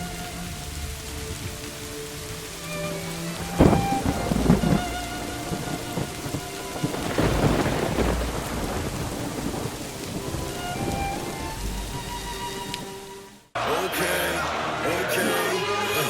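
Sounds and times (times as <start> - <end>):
steady rain: 0.0 - 16.0
deep rolls of thunder: 3.4 - 12.6.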